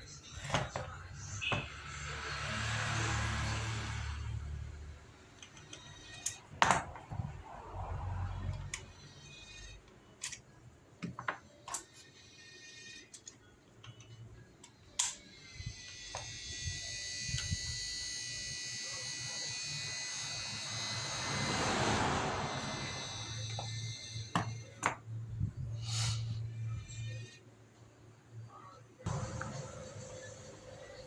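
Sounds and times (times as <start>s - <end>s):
electric hair clipper buzzing: 15.9s - 23.9s.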